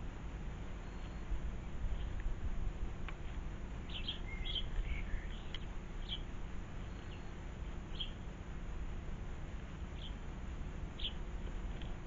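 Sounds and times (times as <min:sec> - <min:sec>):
low background rumble: 0:00.0 - 0:12.0
birds chirping: 0:00.8 - 0:02.3, 0:03.8 - 0:08.3, 0:09.9 - 0:10.2, 0:10.9 - 0:11.3.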